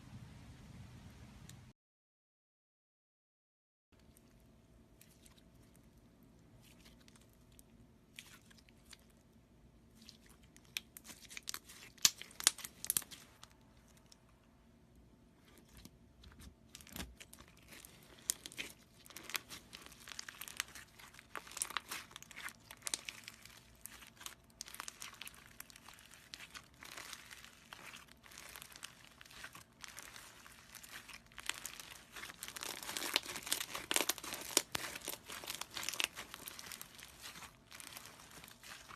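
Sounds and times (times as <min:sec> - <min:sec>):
slime crackling and popping: 0:10.0 - 0:14.1, 0:15.7 - 0:38.9.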